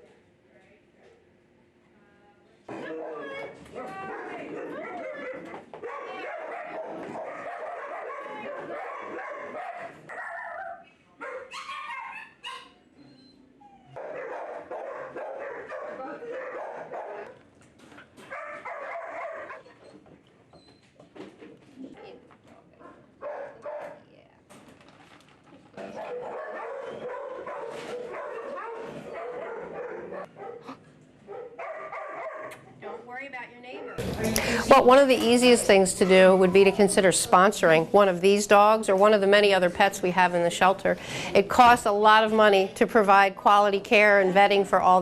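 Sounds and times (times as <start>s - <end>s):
dogs barking: 2.7s - 12.8s, 13.9s - 17.5s, 18.2s - 19.9s, 22.8s - 24.0s, 25.8s - 34.1s.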